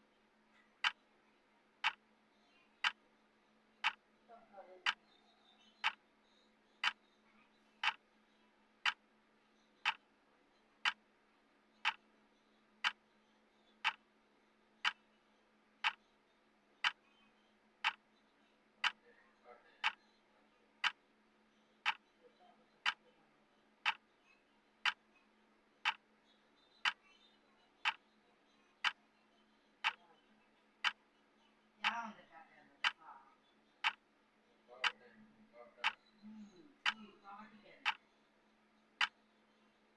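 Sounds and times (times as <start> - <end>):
faint steady hum: 0.0 - 39.9
timer ticking: 0.8 - 1.0, 1.8 - 2.0, 3.8 - 4.0, 7.8 - 8.0, 8.8 - 9.1, 9.8 - 10.0, 11.8 - 12.1, 12.8 - 13.0, 13.8 - 14.0, 15.8 - 16.0, 16.8 - 17.0, 17.8 - 18.0, 18.8 - 19.0, 19.8 - 20.0, 21.8 - 22.1, 22.8 - 23.1, 23.8 - 24.0, 24.8 - 25.0, 25.8 - 26.0, 27.8 - 28.0, 29.8 - 30.0, 30.8 - 31.0, 31.8 - 32.2, 32.8 - 33.0, 33.8 - 34.1, 34.8 - 35.0, 35.8 - 36.1, 37.8 - 38.0, 39.0 - 39.2.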